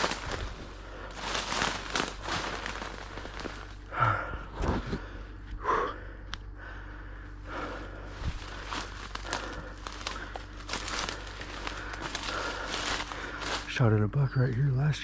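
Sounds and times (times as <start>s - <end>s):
footsteps crunching through dry grass: 0.0s - 5.0s, 7.4s - 14.9s
breathy exhales: 0.0s - 13.7s.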